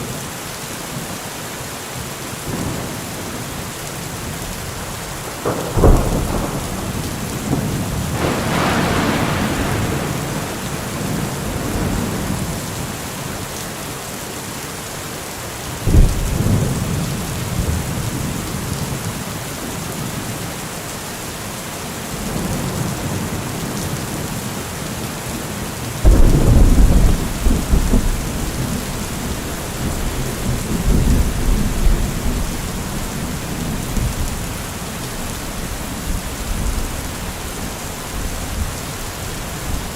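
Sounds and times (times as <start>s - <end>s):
heavy rain: 0.0s - 39.9s
rolling thunder: 5.3s - 13.1s, 15.8s - 18.9s, 26.0s - 37.3s.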